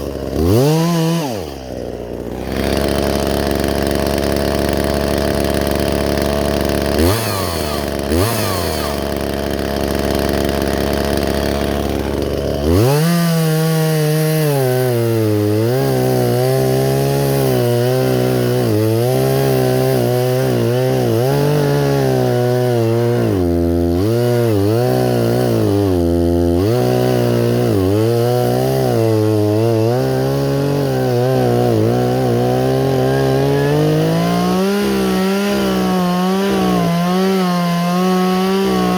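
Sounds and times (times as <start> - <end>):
chainsaw cutting wood: 0.0 - 38.9
chainsaw idling and revving: 0.0 - 38.9.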